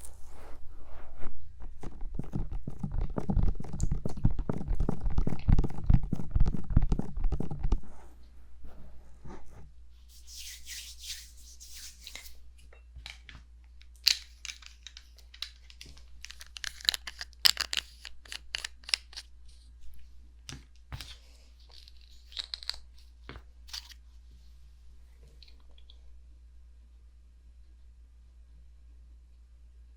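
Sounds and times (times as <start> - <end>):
fingertips rubbing on microphone: 0.0 - 12.2
quick taps and scratches on mic: 1.6 - 7.9.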